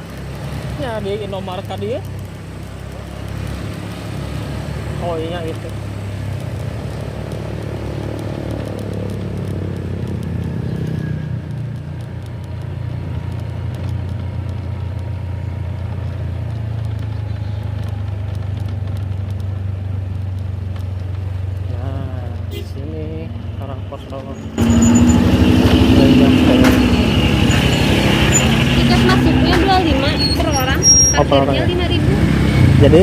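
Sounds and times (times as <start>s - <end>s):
motorcycle engine running: 0.0s - 23.6s.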